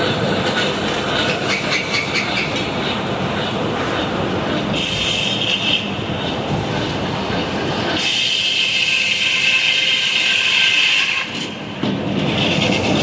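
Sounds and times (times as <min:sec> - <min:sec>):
sawmill machine noise: 0:07.3 - 0:11.5.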